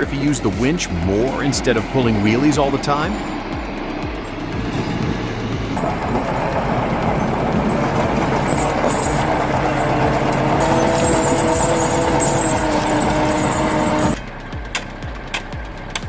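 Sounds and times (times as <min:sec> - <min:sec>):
heavy vehicle engine under load: 0:00.0 - 0:16.0
steady whine: 0:00.0 - 0:16.0.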